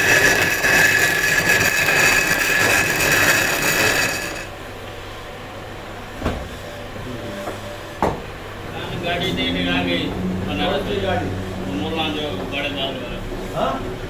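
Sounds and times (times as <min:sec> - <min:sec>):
power tool whining on stone: 0:00.0 - 0:04.5.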